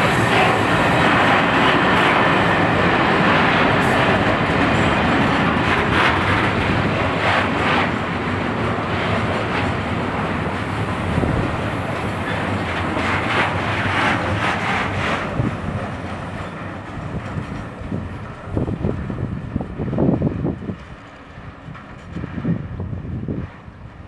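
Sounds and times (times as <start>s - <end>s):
wheels clicking over rail joints: 0.0s - 18.7s
train wheels rumbling on rails: 0.0s - 24.0s.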